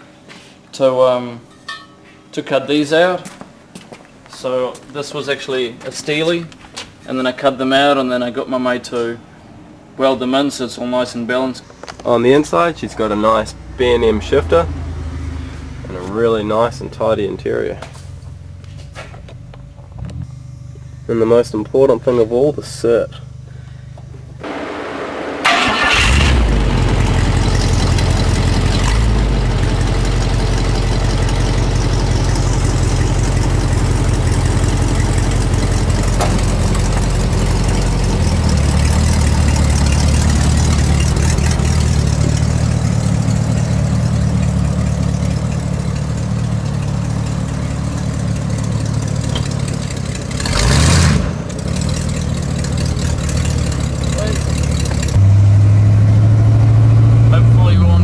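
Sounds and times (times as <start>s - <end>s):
truck engine starting and running: 11.7s - 58.0s.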